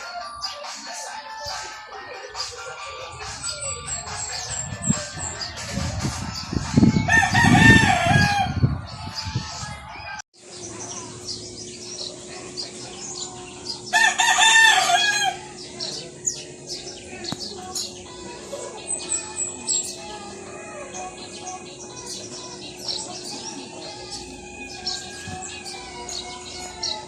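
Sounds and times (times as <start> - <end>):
rooster crowing: 7.0 - 8.6, 13.9 - 15.5
small birds chirping: 10.4 - 27.0.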